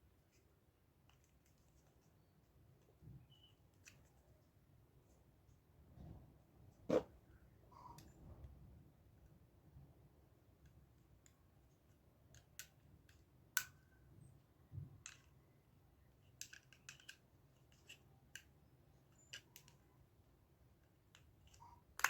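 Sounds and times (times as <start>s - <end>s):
plastic parts clicking: 16.3s - 18.5s.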